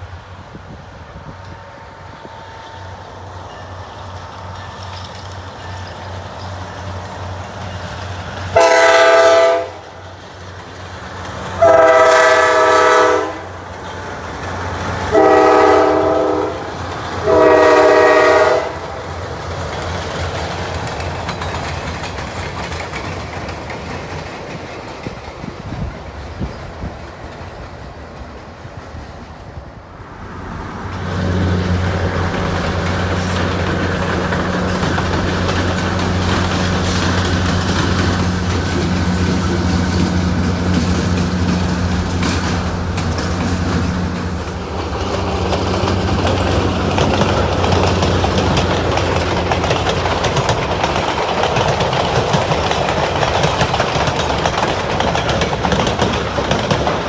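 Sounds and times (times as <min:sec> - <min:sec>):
low locomotive engine drone: 0:00.0 - 0:26.8, 0:29.4 - 0:57.0
train rumbling on rails: 0:00.0 - 0:57.0
locomotive horn blasts: 0:08.6 - 0:09.9, 0:11.6 - 0:13.6, 0:15.1 - 0:19.0, 0:30.1 - 0:44.7.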